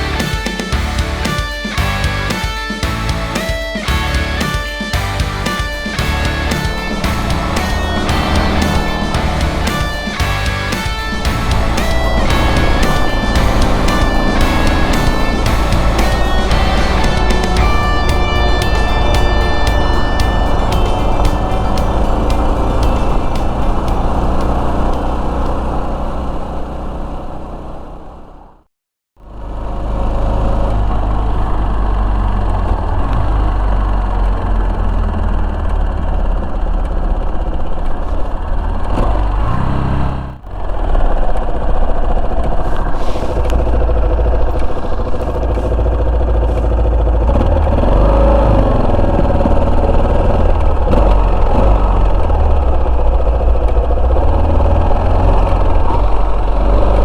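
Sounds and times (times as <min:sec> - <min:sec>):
motorcycle engine running: 0:00.0 - 0:27.0, 0:29.3 - 0:57.0
heavy low rumble: 0:05.0 - 0:26.1.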